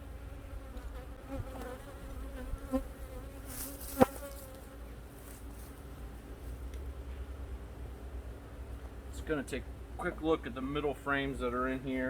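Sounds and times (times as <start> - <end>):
honeybees buzzing: 0.0 - 5.2.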